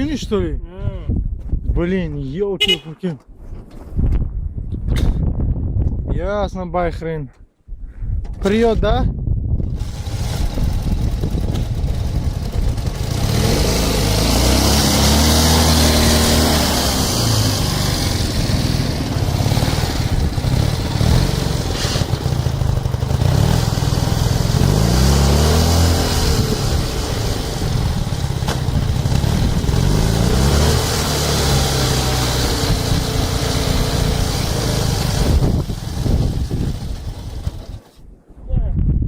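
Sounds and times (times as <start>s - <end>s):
motorcycle engine revving: 9.6s - 38.0s.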